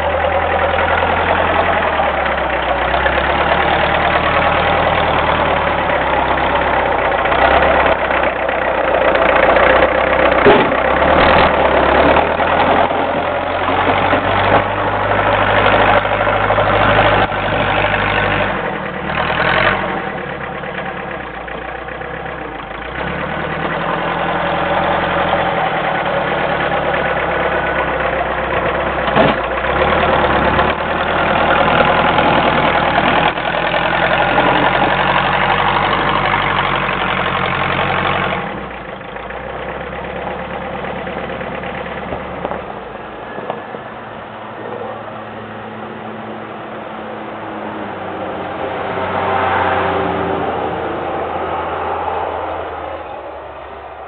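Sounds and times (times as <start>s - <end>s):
tractor diesel engine: 0.0s - 54.0s
short clunks: 10.4s - 11.0s.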